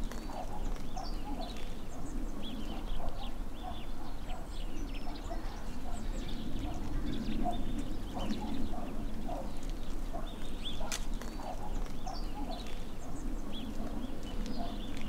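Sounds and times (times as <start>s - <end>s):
lower repeated bird calls: 0.0s - 15.0s.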